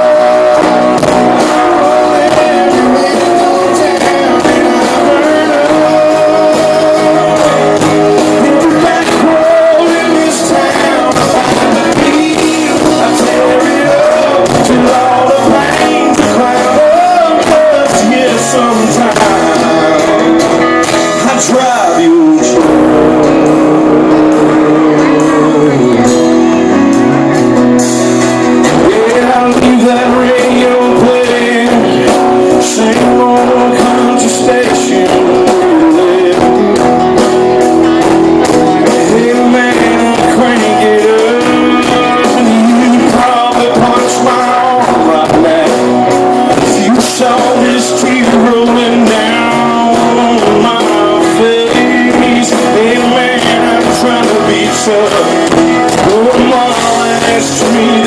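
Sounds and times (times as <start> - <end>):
bending lead melody: 0.0 - 58.0
electric guitars: 0.0 - 58.0
steady drum beat: 0.0 - 58.0.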